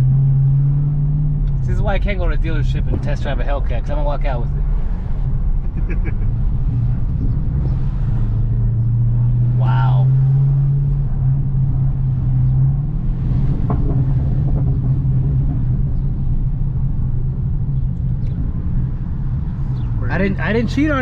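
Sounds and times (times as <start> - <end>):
car engine rumbling: 0.0 - 21.0.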